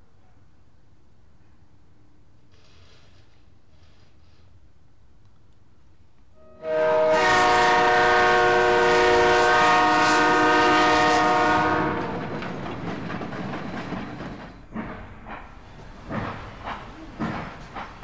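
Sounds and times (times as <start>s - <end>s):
train horn blast: 6.4s - 12.3s
train wheel clatter: 10.4s - 18.0s.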